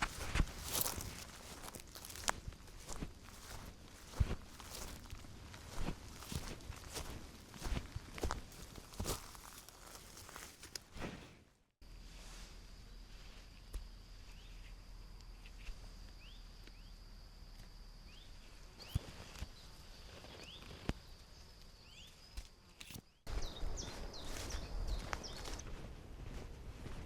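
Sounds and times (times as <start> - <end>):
small birds chirping: 14.2 - 17.0, 18.0 - 25.8.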